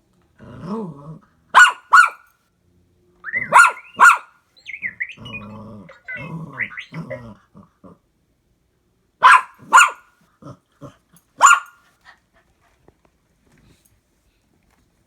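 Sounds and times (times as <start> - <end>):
dog growling: 0.4 - 1.2
dog barking: 1.5 - 2.3, 3.4 - 4.3, 9.2 - 10.1, 11.4 - 11.8
toy robot chirping beeps: 3.2 - 7.3.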